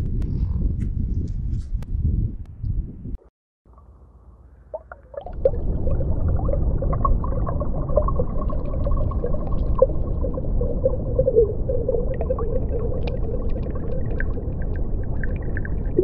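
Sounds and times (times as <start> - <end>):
steady low underwater rumble: 3.7 - 16.0
bubbling gurgling blips: 4.7 - 16.0.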